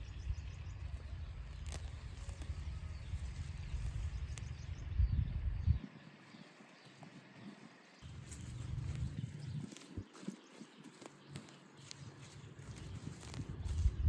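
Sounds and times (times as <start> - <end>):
low uneven rumble: 0.0 - 5.8, 8.0 - 10.1.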